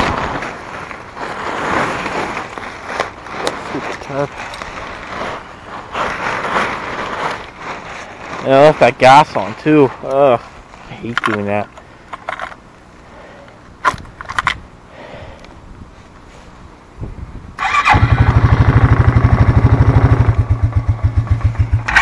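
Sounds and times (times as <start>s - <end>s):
quad bike engine starting and running: 17.6s - 22.0s.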